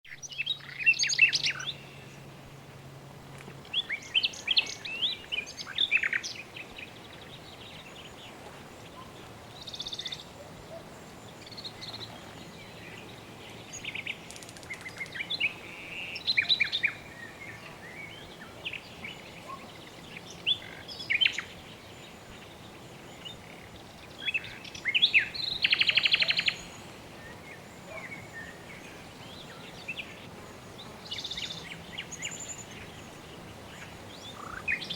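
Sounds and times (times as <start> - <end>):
soft background hiss: 0.1 - 34.9
birds chirping and trilling: 0.2 - 2.5, 3.6 - 34.9.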